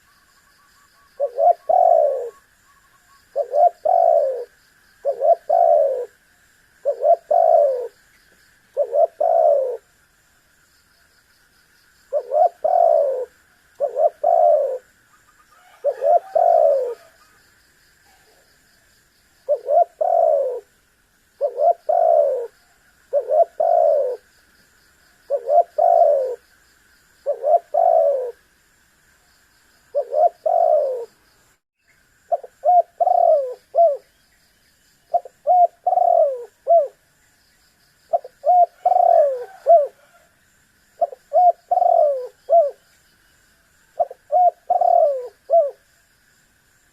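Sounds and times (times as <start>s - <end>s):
dove cooing: 0.9s - 6.2s, 6.8s - 8.0s, 8.7s - 9.9s, 12.1s - 17.4s, 19.4s - 20.8s, 21.4s - 24.3s, 25.3s - 26.4s, 27.2s - 28.4s, 29.9s - 31.2s, 32.3s - 34.2s, 35.1s - 37.0s, 38.1s - 40.3s, 41.0s - 42.8s, 44.0s - 45.8s.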